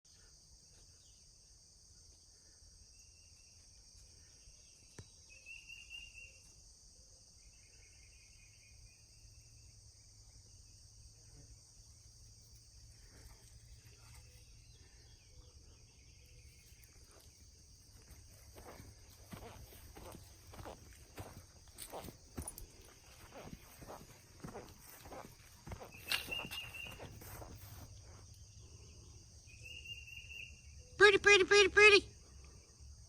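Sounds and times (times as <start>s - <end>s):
crickets chirping: 0.1s - 33.0s
bird calls: 18.6s - 27.9s.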